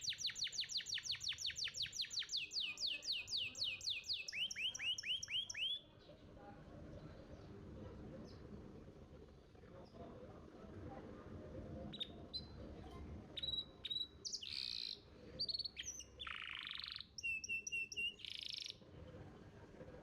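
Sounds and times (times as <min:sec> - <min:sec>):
canary singing: 0:00.0 - 0:05.8, 0:13.4 - 0:18.8.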